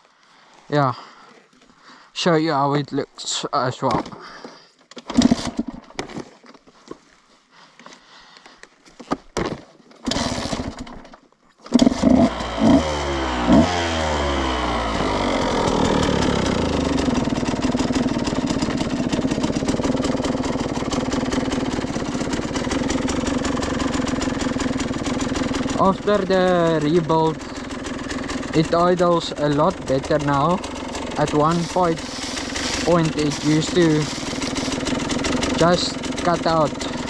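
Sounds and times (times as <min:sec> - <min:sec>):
dirt bike engine revving and idling: 0:05.1 - 0:05.7, 0:10.1 - 0:10.9, 0:11.7 - 0:37.0.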